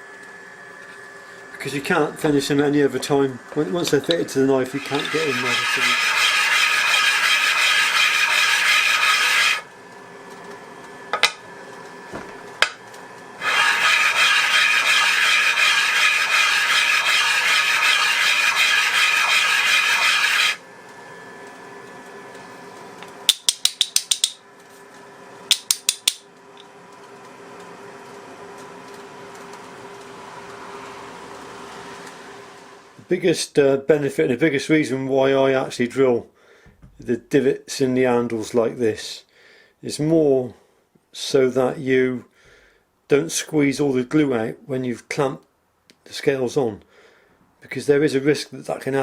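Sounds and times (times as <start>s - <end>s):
belt grinder running: 1.9s - 9.7s, 13.4s - 20.6s
belt grinder grinding: 3.8s - 9.7s, 13.4s - 20.6s.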